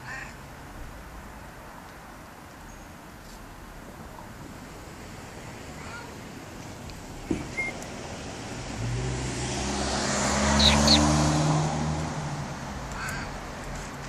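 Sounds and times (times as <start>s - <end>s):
car passing by: 5.0s - 14.0s.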